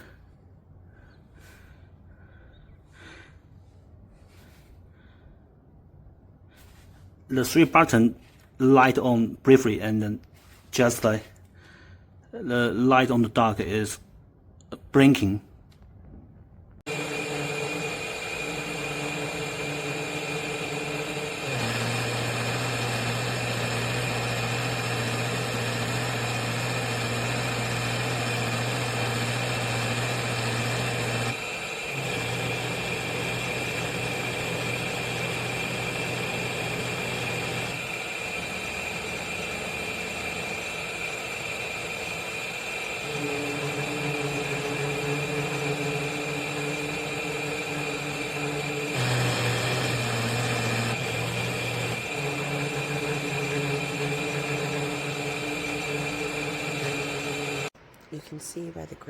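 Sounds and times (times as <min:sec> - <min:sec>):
robot vacuum motors humming: 0:16.9 - 0:57.7.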